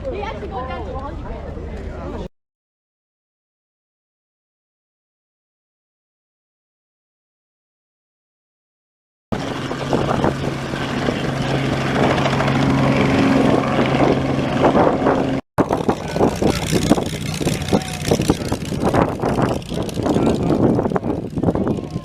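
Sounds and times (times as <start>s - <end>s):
propeller aircraft engine running: 9.3s - 22.0s.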